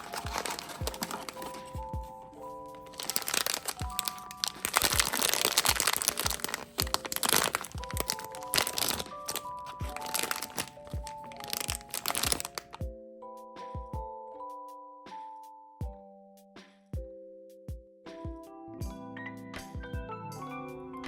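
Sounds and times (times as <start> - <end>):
packaging crinkling: 0.0 - 1.9, 2.6 - 12.8
soft background music with beat: 0.0 - 21.0.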